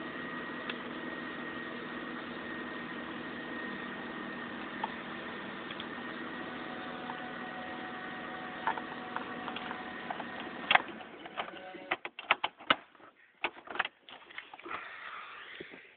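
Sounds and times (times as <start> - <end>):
car engine idling: 1.8 - 10.9
irregular clicks and knocks: 8.6 - 14.2.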